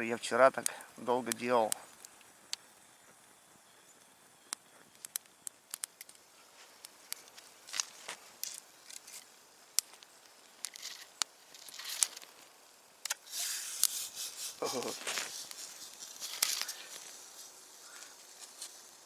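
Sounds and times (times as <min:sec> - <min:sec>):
wood fire crackling: 0:00.0 - 0:19.0
brief rustles: 0:13.3 - 0:18.8.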